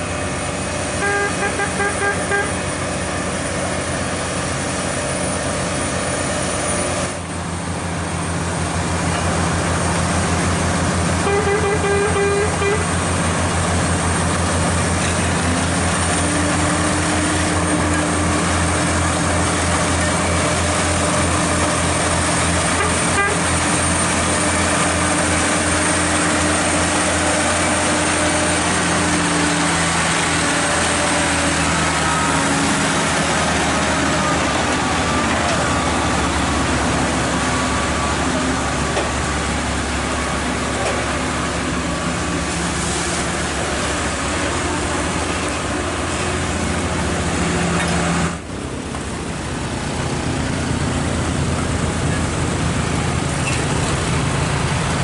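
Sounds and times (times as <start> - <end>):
truck diesel engine running: 0.0 - 55.0
truck horn blasts: 0.9 - 2.8, 11.2 - 12.9, 22.6 - 23.8.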